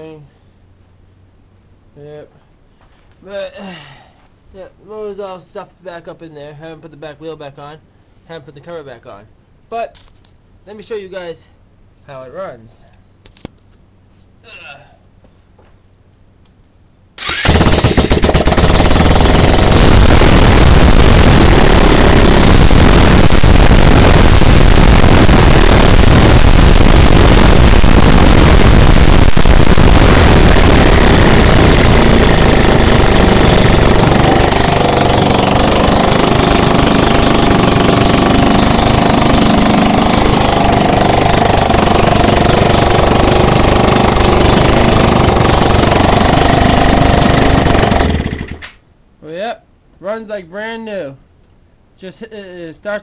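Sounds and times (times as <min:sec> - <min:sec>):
scooter engine running: 0:17.2 - 0:20.6, 0:21.2 - 0:24.2, 0:30.0 - 0:48.6
electric starter: 0:17.2 - 0:48.8.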